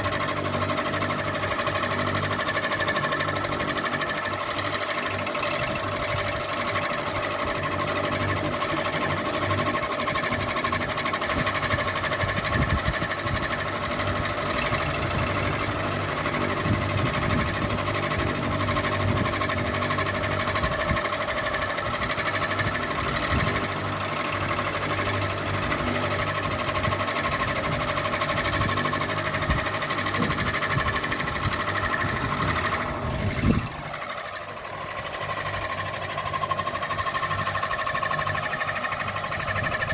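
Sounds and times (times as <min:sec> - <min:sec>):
ceiling fan motor hum: 0:00.0 - 0:39.9
fan mechanical rattle: 0:00.0 - 0:39.9
fan jolt: 0:10.4 - 0:39.9.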